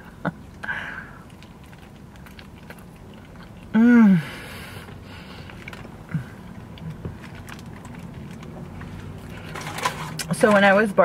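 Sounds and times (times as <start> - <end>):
quiet chewing: 0.0 - 10.3
steady low hum: 0.0 - 11.0
person humming closed-mouth mm: 3.7 - 4.5.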